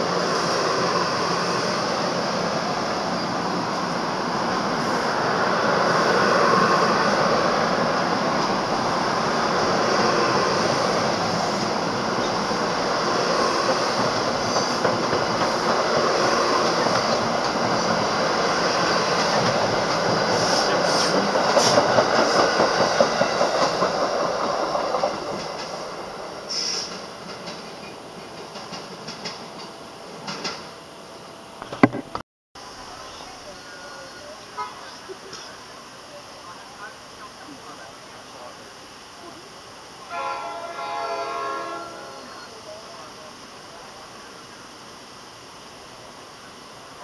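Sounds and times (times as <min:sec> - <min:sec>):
train coaches rolling past: 0:00.0 - 0:31.6, 0:32.6 - 0:47.0.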